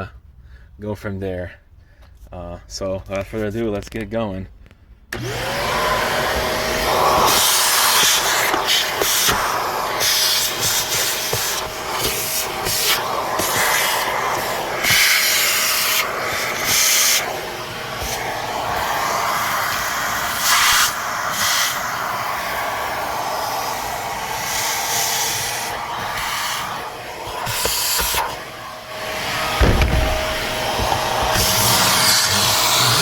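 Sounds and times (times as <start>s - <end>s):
vacuum cleaner suction: 5.1s - 33.0s
low thump: 29.5s - 31.1s.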